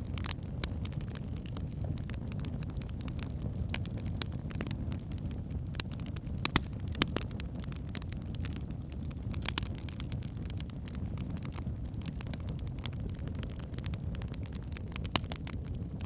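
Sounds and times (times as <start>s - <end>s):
flames rumbling: 0.0s - 16.0s
logs crackling and popping: 0.0s - 16.0s.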